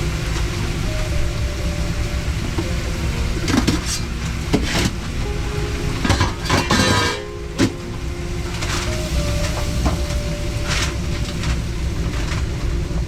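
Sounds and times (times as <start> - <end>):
steady low rumble: 0.0 - 13.0
pans and utensils clinking: 5.9 - 7.8.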